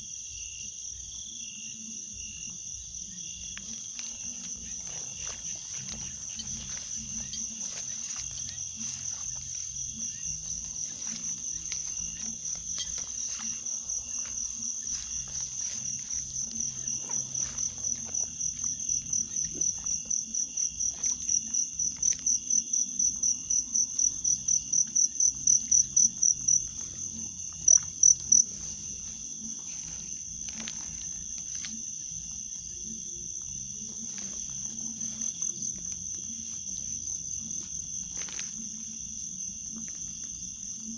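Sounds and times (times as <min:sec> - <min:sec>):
cricket trill: 0:00.0 - 0:40.9
insect chirping in rapid pulses: 0:00.0 - 0:40.9.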